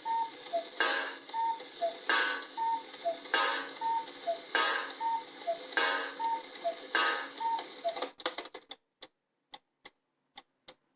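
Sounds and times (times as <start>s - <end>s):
cuckoo clock calling: 0.0s - 8.2s
clock ticking: 0.0s - 10.9s.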